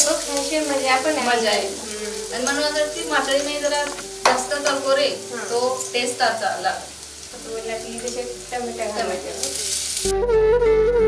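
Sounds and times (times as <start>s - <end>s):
onions sizzling in hot oil: 0.0s - 10.1s
tomatoes hissing into pan: 0.0s - 10.1s
flute music: 0.6s - 6.0s, 8.6s - 11.0s.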